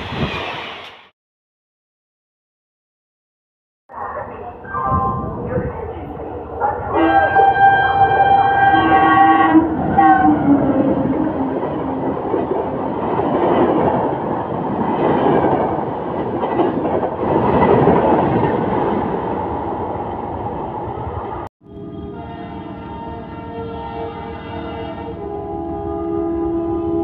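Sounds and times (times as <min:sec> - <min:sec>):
train wheel and rail noise: 0:00.0 - 0:01.1, 0:03.9 - 0:27.0
locomotive horn: 0:06.8 - 0:12.2, 0:21.8 - 0:27.0.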